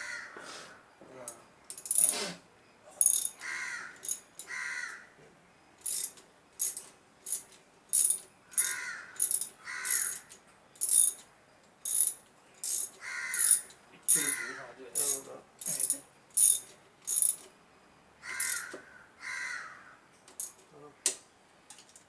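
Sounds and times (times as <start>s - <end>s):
crows cawing: 0.0s - 0.9s, 3.4s - 5.2s, 8.4s - 10.4s, 13.0s - 15.1s, 18.2s - 20.1s
hand tools clicking on metal: 1.3s - 2.2s, 3.0s - 4.6s, 5.8s - 17.5s, 18.3s - 18.8s, 20.3s - 22.0s.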